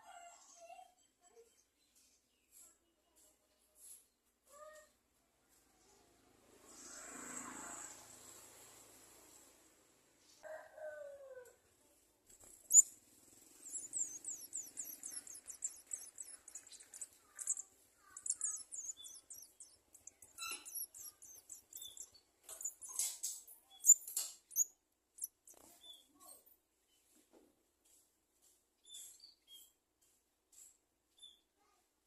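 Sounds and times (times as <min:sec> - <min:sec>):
nestlings chittering chirps: 0:12.4 - 0:26.1.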